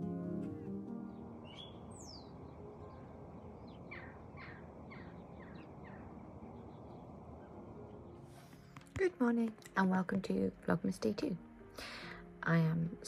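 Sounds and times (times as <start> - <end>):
outdoor background noise: 0.0 - 11.7
birds calling: 0.5 - 8.3.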